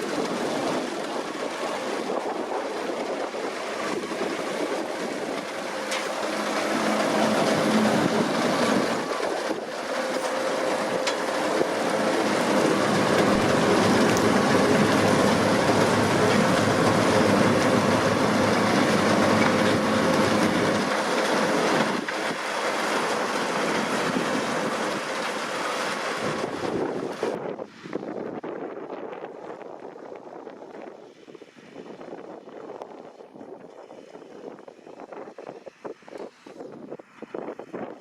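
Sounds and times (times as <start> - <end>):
harvester mechanical clatter: 0.0 - 27.3
tractor diesel engine under load: 0.0 - 27.4.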